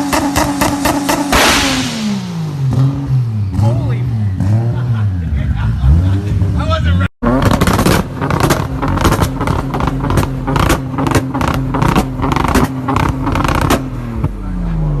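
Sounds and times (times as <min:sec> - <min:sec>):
exhaust pops and bangs: 0:00.0 - 0:02.2, 0:07.2 - 0:14.4.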